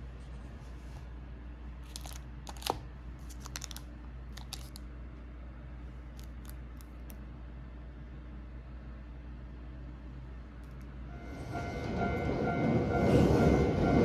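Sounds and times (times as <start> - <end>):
steady low hum: 0.0 - 14.0
clicks and rustles of handling: 1.8 - 4.9.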